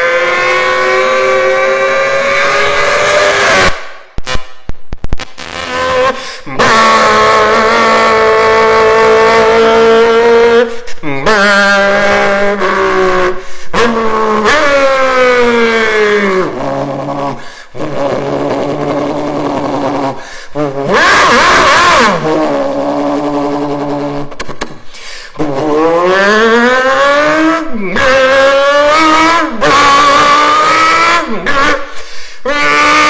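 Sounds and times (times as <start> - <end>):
race car engine revving by: 0.0 - 3.9.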